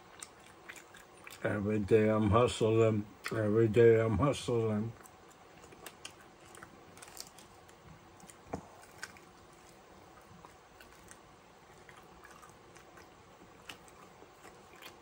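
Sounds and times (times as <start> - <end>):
person chewing and biting: 0.0 - 1.5, 5.0 - 15.0.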